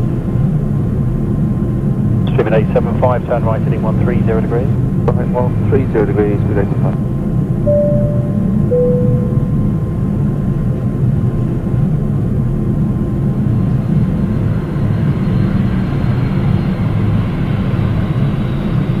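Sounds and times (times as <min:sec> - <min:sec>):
jet engines rumbling: 0:01.7 - 0:10.1
faint high whine: 0:07.7 - 0:10.0.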